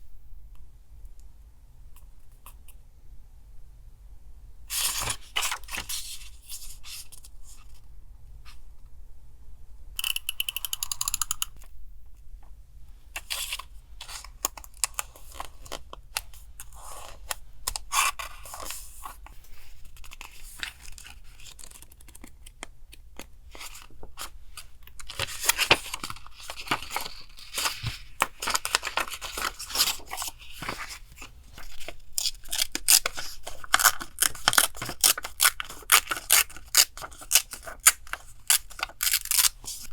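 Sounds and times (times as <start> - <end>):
paper rustling: 4.7 - 7.8, 13.2 - 39.9
scissors snipping paper: 32.1 - 39.9.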